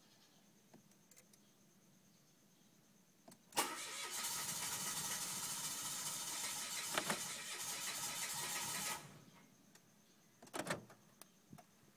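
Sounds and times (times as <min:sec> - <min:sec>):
car engine cranking without starting: 0:03.6 - 0:09.2.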